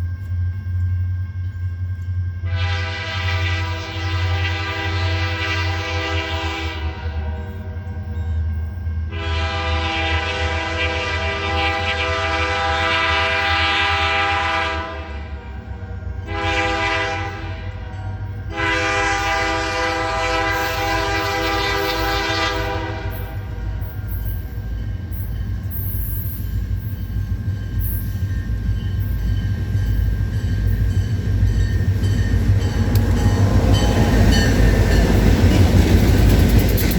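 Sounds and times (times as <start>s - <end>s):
locomotive air horn blasts: 2.4s - 8.1s, 9.1s - 23.9s.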